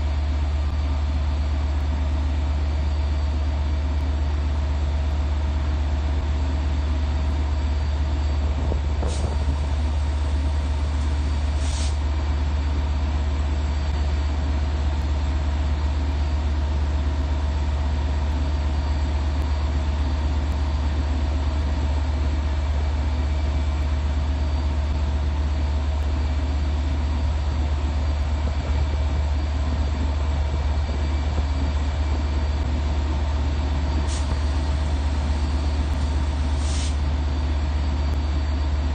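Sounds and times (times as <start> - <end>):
diesel train idling: 0.0 - 38.9
brief hisses: 11.6 - 12.0, 36.6 - 37.0.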